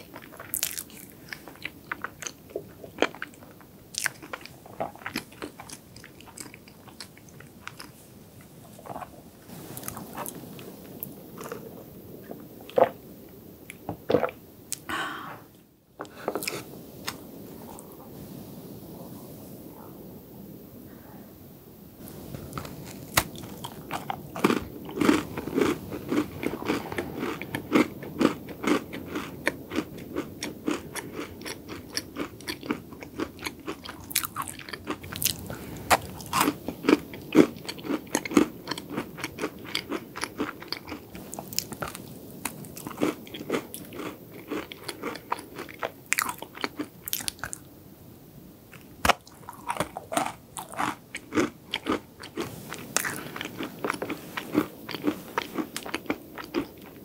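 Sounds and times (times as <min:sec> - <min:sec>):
crunching a hard cookie: 0:48.8 - 0:57.0.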